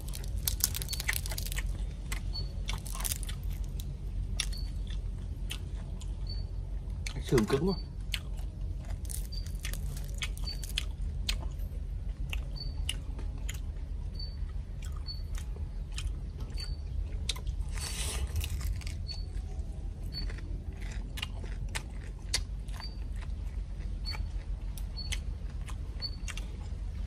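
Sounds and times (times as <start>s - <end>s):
crisp crust crackling: 0.0s - 4.6s, 8.8s - 11.5s, 17.3s - 23.4s
person chewing crispy meat: 0.0s - 27.0s.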